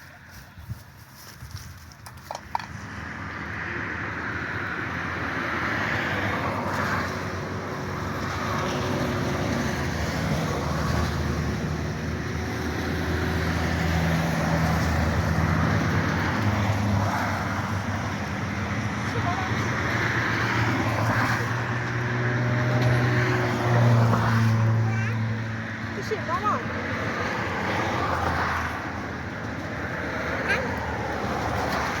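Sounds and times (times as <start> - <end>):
road and tyre noise: 0.0 - 32.0.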